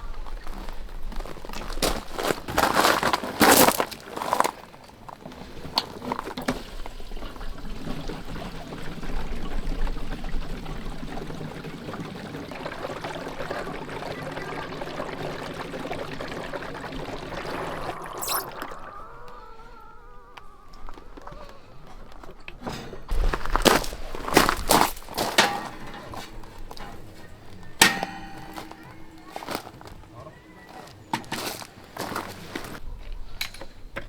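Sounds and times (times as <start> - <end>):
liquid pouring: 1.5 - 19.0.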